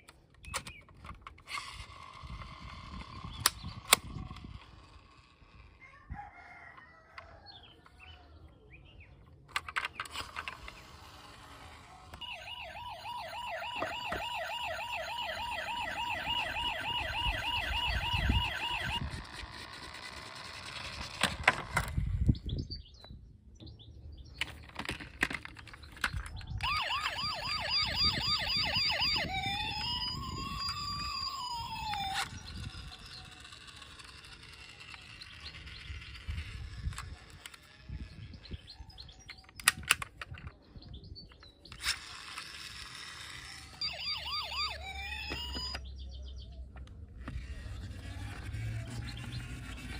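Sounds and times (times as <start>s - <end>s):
toy electronic siren: 10.5s - 21.2s, 26.5s - 38.6s, 41.8s - 45.8s, 47.2s - 49.9s.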